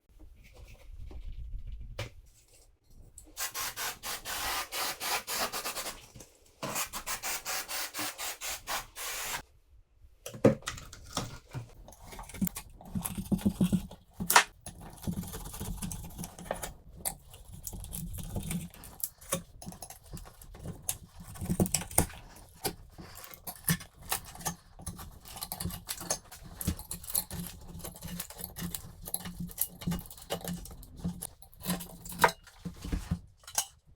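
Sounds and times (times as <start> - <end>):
scraping and rubbing: 10.9 - 33.8.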